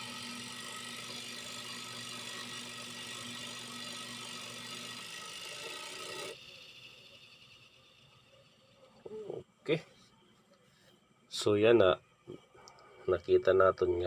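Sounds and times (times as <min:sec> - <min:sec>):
electric motor hum: 0:00.0 - 0:09.4
spinning basket whir: 0:00.0 - 0:09.4.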